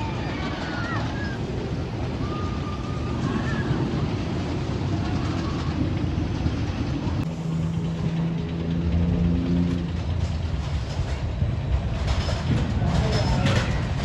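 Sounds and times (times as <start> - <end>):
roller coaster rumbling on steel track: 0.0 - 14.0.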